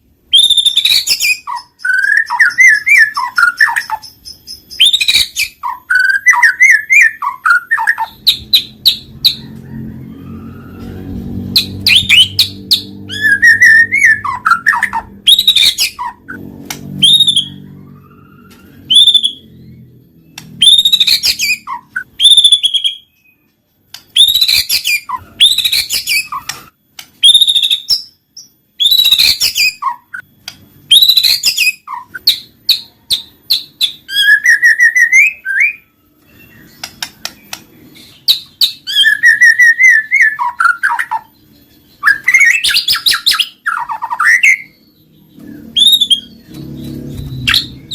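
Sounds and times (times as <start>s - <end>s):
bird singing whistles and chatter: 28.8s - 30.2s, 30.9s - 47.9s.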